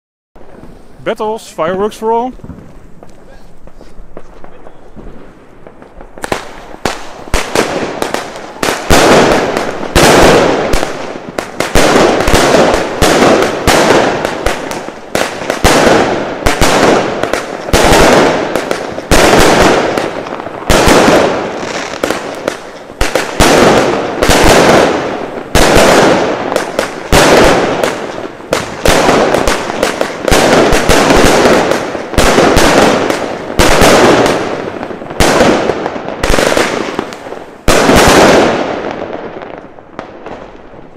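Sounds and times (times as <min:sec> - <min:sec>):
small firework pops: 0:02.4 - 0:24.9, 0:35.1 - 0:40.7
firework shots bursting: 0:02.4 - 0:40.9.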